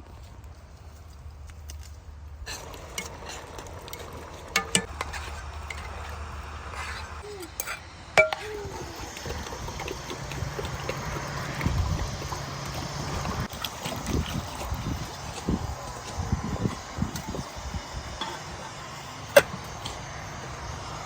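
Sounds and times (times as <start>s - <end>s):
dishes and utensils clinking: 2.5s - 6.0s, 7.4s - 12.4s.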